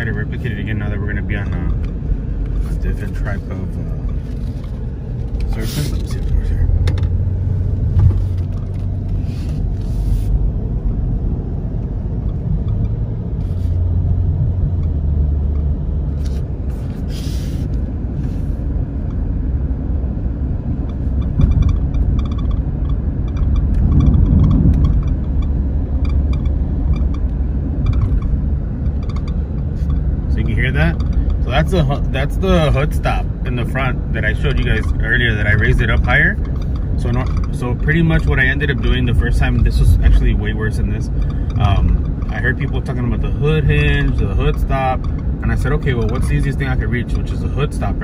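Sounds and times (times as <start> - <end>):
road rumble inside car cabin: 0.0 - 48.0
short squeaks and creaks: 11.8 - 19.2, 20.8 - 31.5, 41.0 - 43.0.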